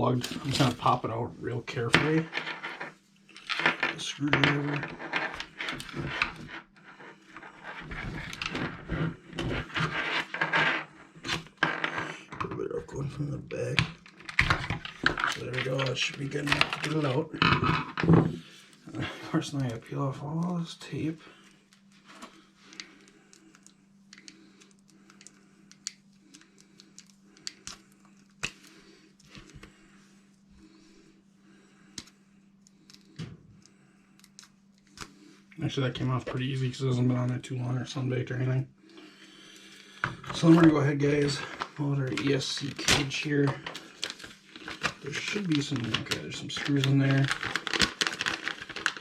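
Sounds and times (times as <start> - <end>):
steady low hum: 0.0 - 49.0
small clicks and rustles: 45.6 - 49.0.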